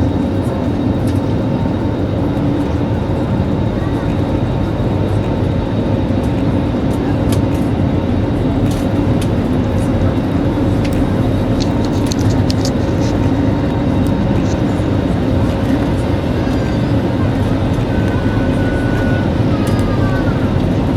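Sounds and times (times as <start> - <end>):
airliner engine drone: 0.0 - 20.9
small clicks: 11.6 - 13.2.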